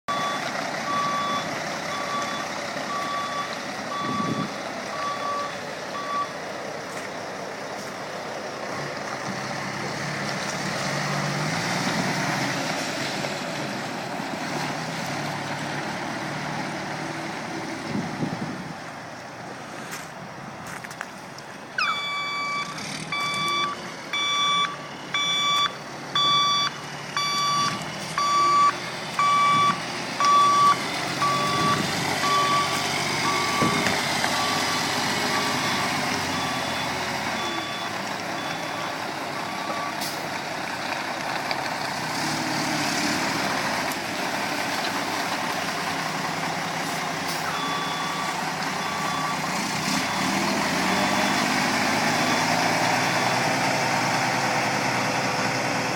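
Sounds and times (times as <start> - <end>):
backup alarm beeping: 0.1 - 6.4, 21.8 - 40.0, 47.5 - 51.4
diesel engine running: 0.1 - 55.9.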